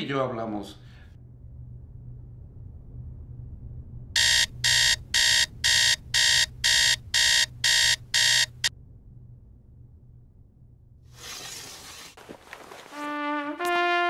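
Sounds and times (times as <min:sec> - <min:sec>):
phone alarm beeping: 0:04.2 - 0:08.7.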